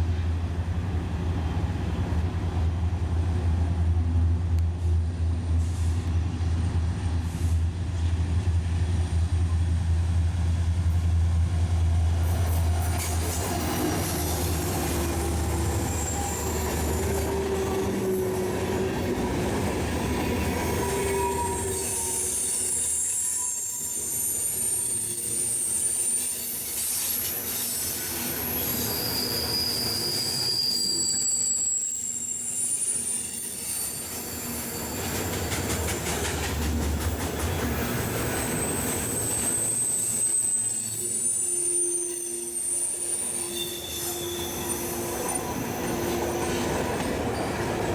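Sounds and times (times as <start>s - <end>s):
railroad cars rumbling on rails: 0.0s - 47.9s
high-pitched wheel squeals: 14.0s - 19.1s, 20.0s - 35.6s, 38.2s - 47.8s.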